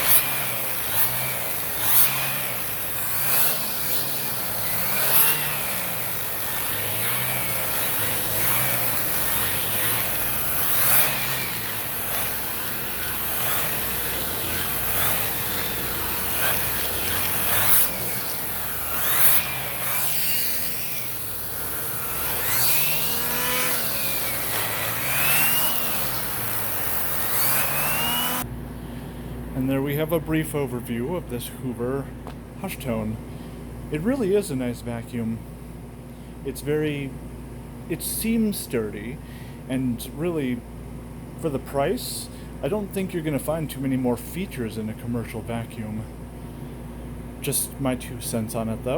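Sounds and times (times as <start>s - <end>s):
vacuum cleaner running: 0.0s - 28.4s.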